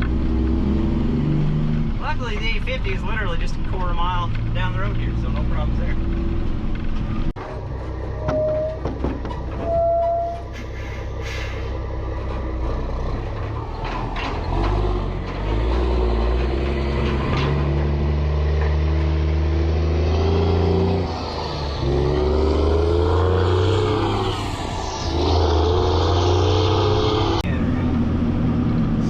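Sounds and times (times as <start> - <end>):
truck diesel engine driving: 0.0 - 29.0
short squeals: 8.1 - 11.8.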